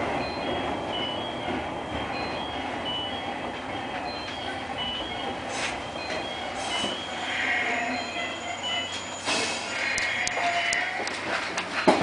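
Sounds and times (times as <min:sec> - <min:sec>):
train running rumble: 0:00.0 - 0:12.0
short high-pitched beeps: 0:04.0 - 0:10.8.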